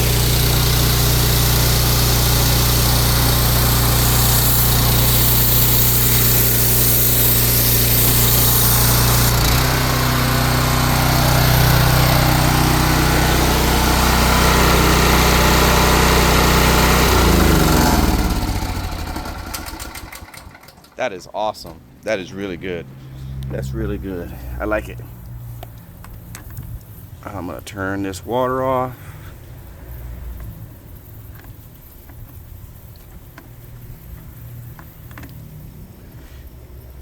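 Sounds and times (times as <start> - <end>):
pressure washer running: 0.0 - 21.0.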